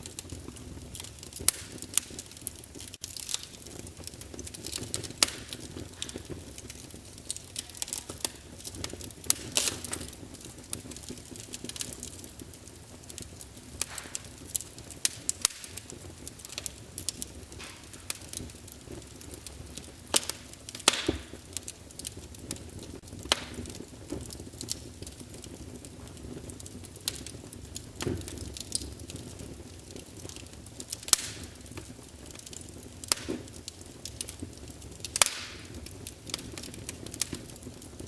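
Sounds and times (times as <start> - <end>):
wood fire crackling and popping: 0.0 - 38.0.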